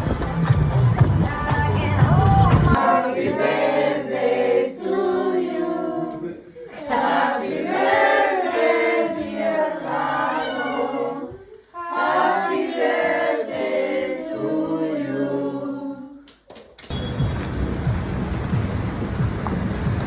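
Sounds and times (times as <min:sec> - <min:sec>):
voices singing together: 0:01.1 - 0:16.3
steady rushing noise: 0:17.3 - 0:20.0.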